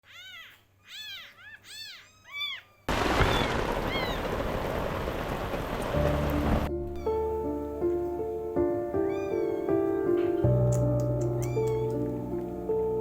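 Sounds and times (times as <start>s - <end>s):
kitten meowing: 0.0s - 2.8s, 9.0s - 10.6s, 11.2s - 12.1s
heavy rain hiss: 2.9s - 6.7s.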